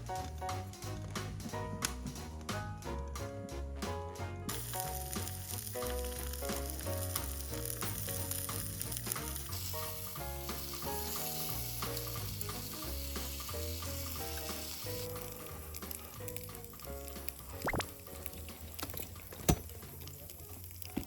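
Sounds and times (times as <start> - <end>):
dense sizzling hiss: 4.5 - 21.0.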